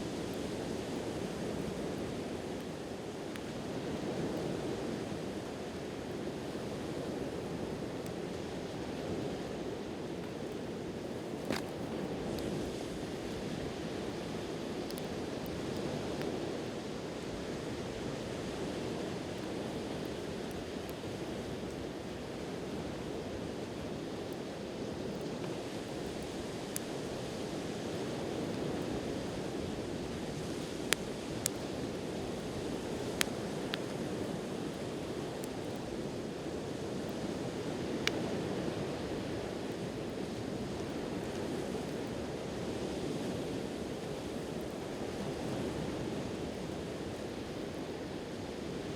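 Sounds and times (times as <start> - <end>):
campfire pops: 11.2 - 13.5, 30.6 - 35.8, 37.9 - 38.3.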